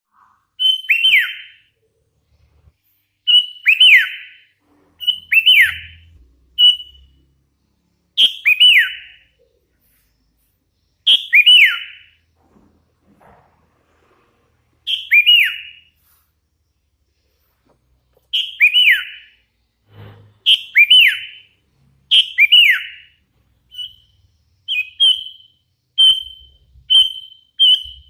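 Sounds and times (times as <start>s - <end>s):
bird calling in whistled phrases: 0.1s - 1.7s, 3.3s - 7.2s, 8.2s - 9.4s, 11.0s - 12.2s, 14.9s - 16.0s, 18.3s - 19.4s, 20.5s - 28.0s.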